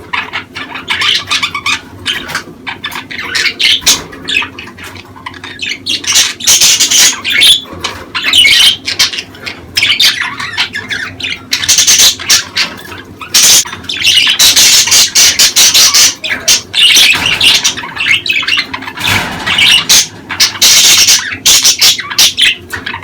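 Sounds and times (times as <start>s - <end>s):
budgerigars chattering and squawking: 0.0s - 23.0s.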